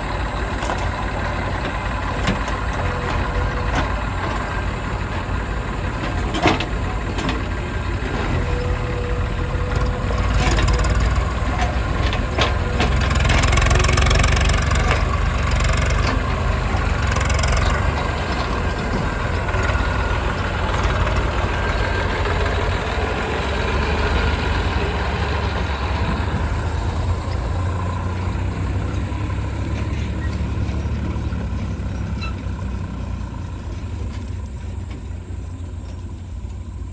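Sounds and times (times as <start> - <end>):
diesel engines running: 0.0 - 36.9.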